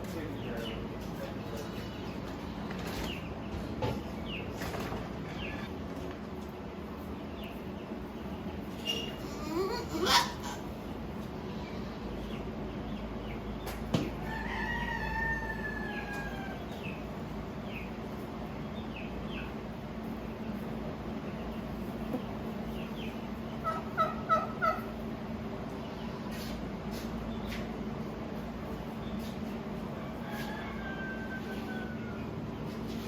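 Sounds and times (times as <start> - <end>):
steady low hum: 0.0 - 33.0
barnyard fowl calling: 1.4 - 6.0, 8.7 - 13.4, 14.0 - 18.2, 21.5 - 26.4, 29.2 - 33.0.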